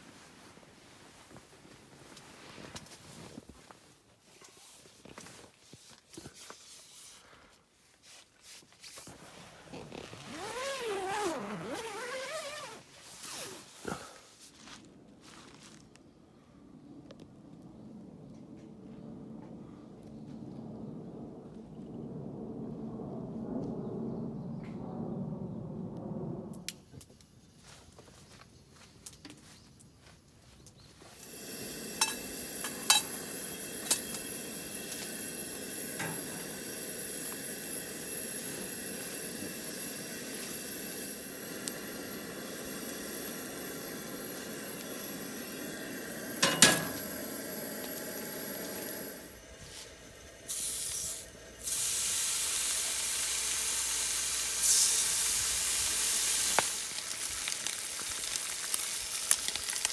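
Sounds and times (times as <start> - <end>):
food sizzling in a pan: 31.2 - 49.9, 50.5 - 59.9.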